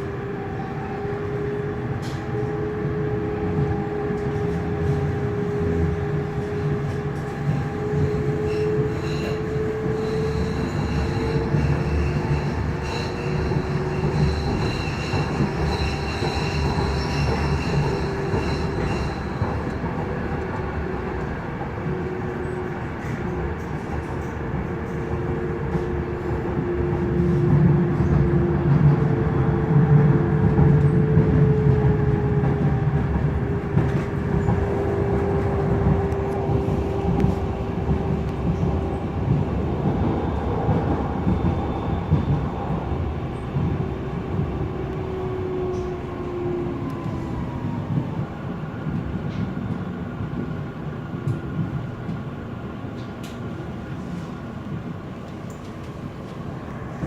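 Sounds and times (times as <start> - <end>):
rumble of train wheels on rail: 0.0 - 57.0.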